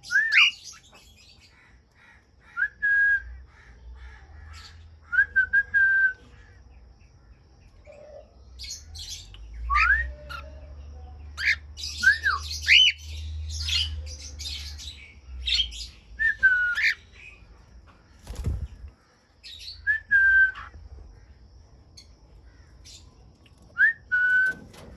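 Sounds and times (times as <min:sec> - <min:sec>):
birds whistling: 0:00.0 - 0:01.4, 0:07.9 - 0:10.6, 0:11.3 - 0:17.3, 0:18.2 - 0:20.8, 0:23.7 - 0:24.9
birds chirping and squawking: 0:00.0 - 0:02.6, 0:03.4 - 0:05.1, 0:06.2 - 0:19.9, 0:20.6 - 0:23.8.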